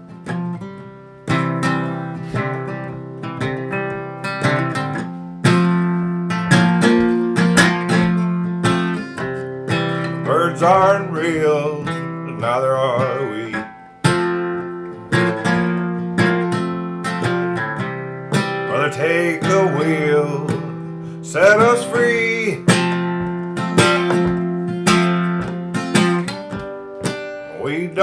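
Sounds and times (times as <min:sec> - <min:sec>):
acoustic guitar strumming: 0:00.0 - 0:28.0
wordless vocal: 0:10.0 - 0:13.7, 0:18.7 - 0:22.8, 0:27.5 - 0:28.0.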